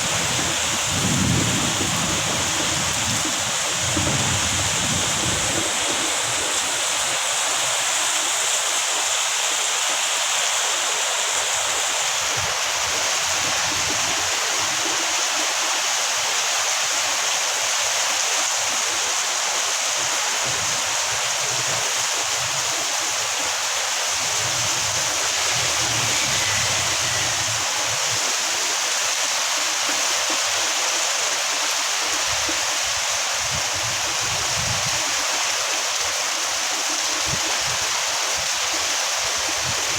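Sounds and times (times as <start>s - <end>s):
strong wind gusts: 0.0s - 8.5s, 11.3s - 15.4s, 19.9s - 30.0s, 32.1s - 36.1s
heavy rain pouring: 0.0s - 39.9s.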